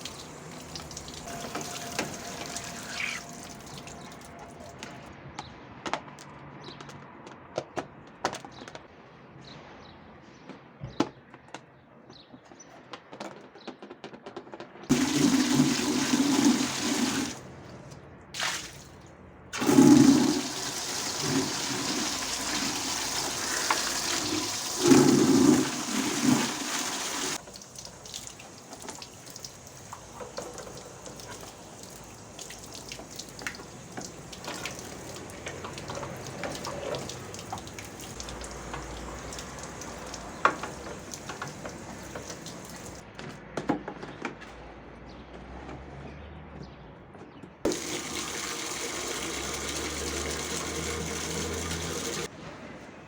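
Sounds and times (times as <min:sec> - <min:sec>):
water gushing and splashing: 0:00.0 - 0:05.0, 0:14.9 - 0:17.6, 0:19.6 - 0:43.0, 0:47.7 - 0:52.3.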